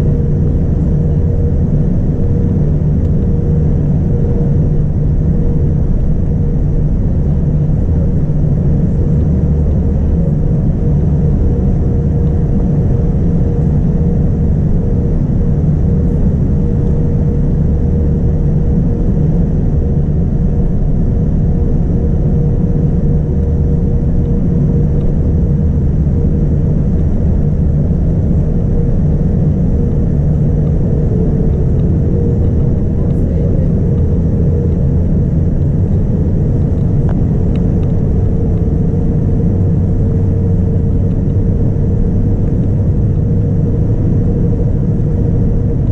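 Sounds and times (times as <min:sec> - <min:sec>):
airliner cabin rumble: 0:00.0 - 0:45.9.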